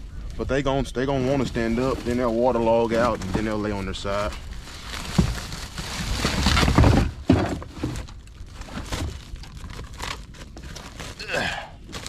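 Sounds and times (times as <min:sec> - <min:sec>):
scraping rumble: 0:00.0 - 0:09.4
branches crackling and rustling: 0:00.0 - 0:12.0.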